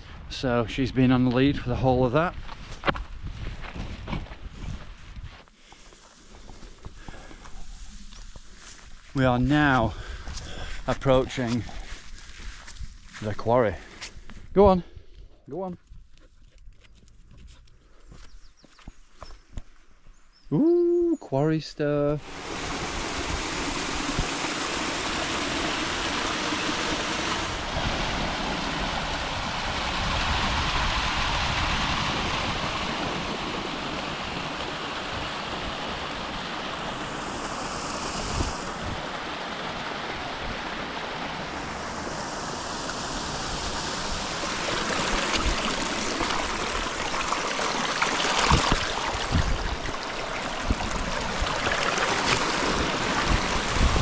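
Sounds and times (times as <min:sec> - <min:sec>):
stream water rushing: 0:22.2 - 0:54.0.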